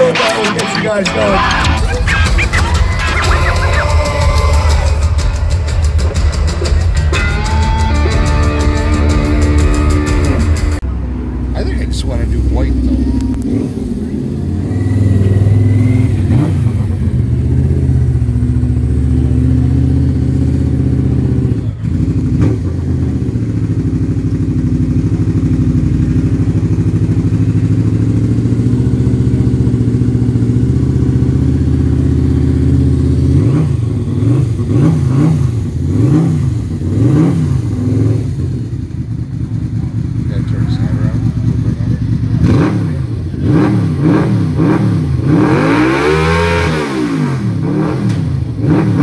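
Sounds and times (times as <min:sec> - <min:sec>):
motorcycle engine revving: 0:01.7 - 0:49.0.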